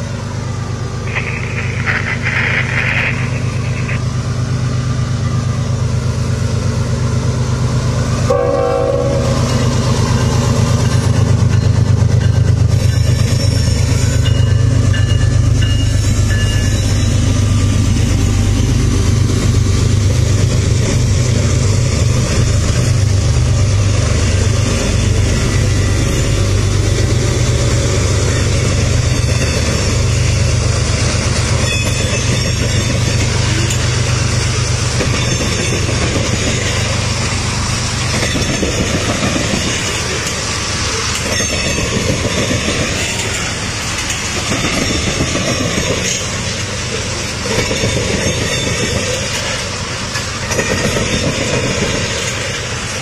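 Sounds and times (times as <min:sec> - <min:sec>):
heavy low drone: 0:00.0 - 0:12.9
train wheels rumbling over rails: 0:00.0 - 0:53.0.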